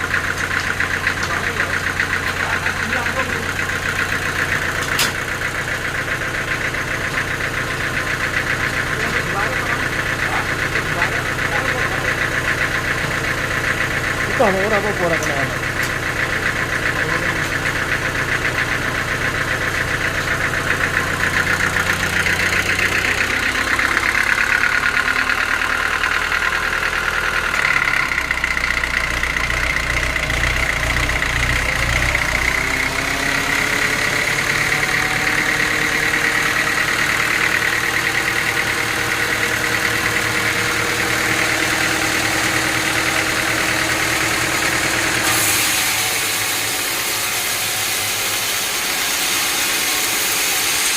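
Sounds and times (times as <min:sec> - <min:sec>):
sawmill engine drone: 0:00.0 - 0:50.9
machinery whine: 0:14.2 - 0:50.9.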